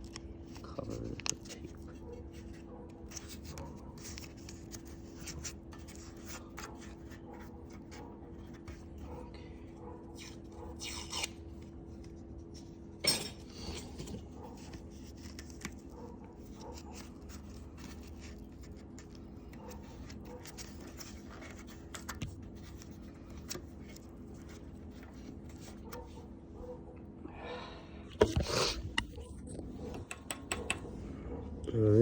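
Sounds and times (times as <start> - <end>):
faint steady hum: 0.0 - 32.0
small clicks and taps: 29.9 - 30.9.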